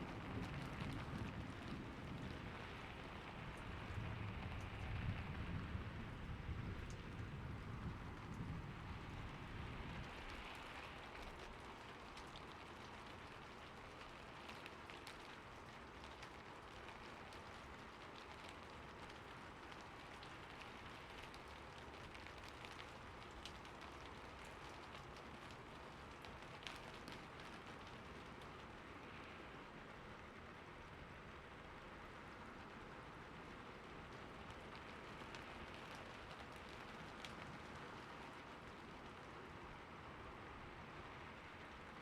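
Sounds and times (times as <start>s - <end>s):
sharp raindrop impacts: 0.0s - 42.0s
steady rain falling: 0.0s - 42.0s.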